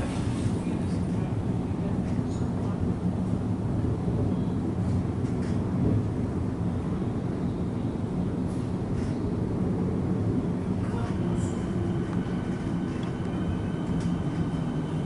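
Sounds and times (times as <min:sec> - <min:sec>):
electric train rumble: 0:00.0 - 0:15.0.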